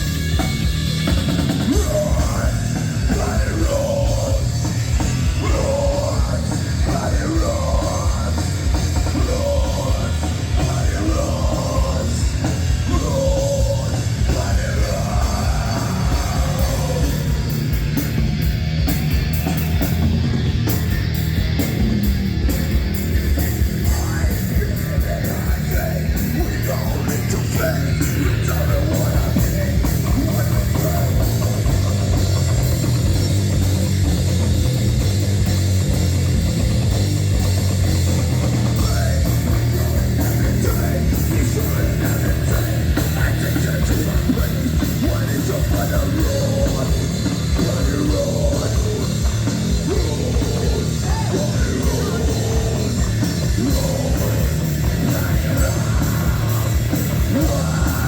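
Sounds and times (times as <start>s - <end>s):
drum kit: 0.0s - 58.0s
electric guitars: 0.0s - 58.0s
heavy metal band playing: 0.0s - 58.0s.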